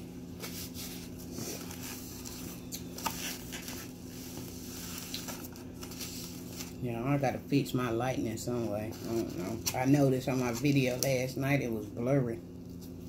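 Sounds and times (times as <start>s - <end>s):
steady low hum: 0.0s - 13.0s
paper napkin rustling: 0.3s - 6.8s, 8.6s - 11.0s.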